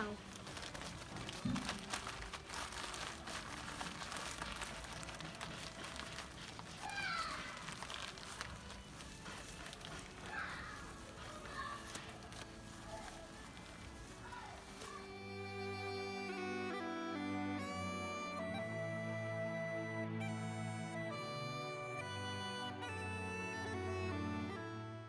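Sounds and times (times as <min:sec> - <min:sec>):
newspaper crumpling: 0:00.0 - 0:15.2.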